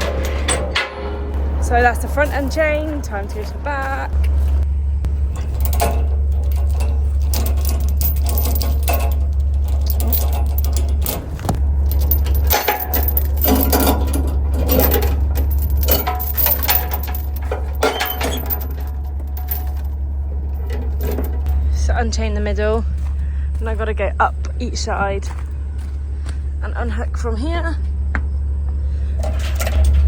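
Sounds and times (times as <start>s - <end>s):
metal chains clinking and rattling: 0.0s - 22.0s, 29.2s - 30.0s
steady low hum: 0.0s - 30.0s.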